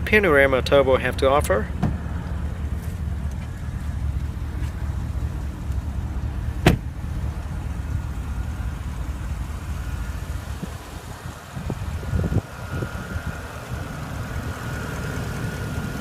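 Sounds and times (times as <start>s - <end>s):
car engine idling: 0.0s - 16.0s
sharp clunk: 6.6s - 6.9s.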